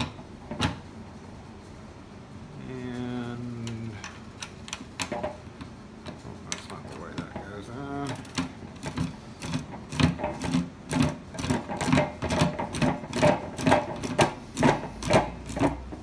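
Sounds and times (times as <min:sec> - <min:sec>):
rhythmic mechanical tool strokes: 0:07.8 - 0:16.0.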